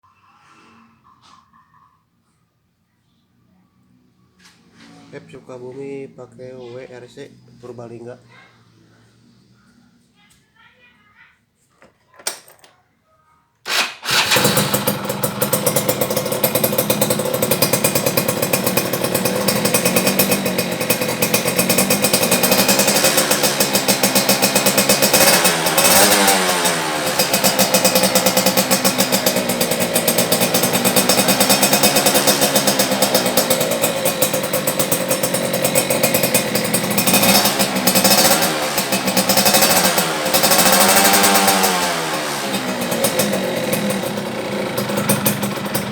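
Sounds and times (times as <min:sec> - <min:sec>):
two-stroke motorcycle revving: 0:13.7 - 0:45.9.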